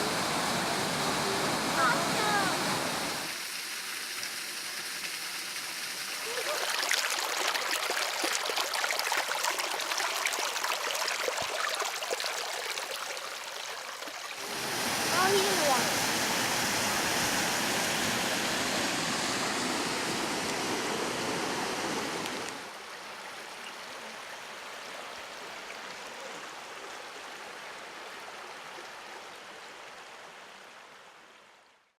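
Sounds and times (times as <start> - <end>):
waterfall roaring: 0.0 - 3.4, 14.4 - 22.7.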